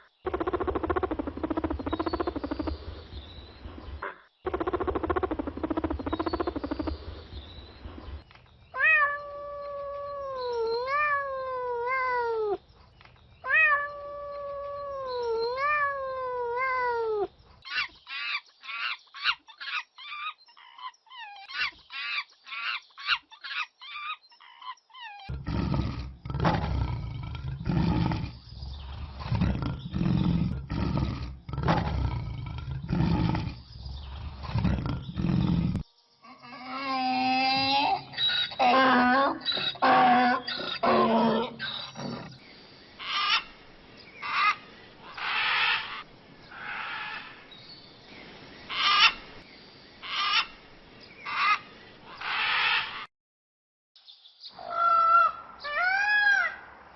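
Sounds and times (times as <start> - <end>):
cat-like animal yowls: 8.8 - 12.6, 13.5 - 17.3
loud deep animal calls: 25.3 - 35.8.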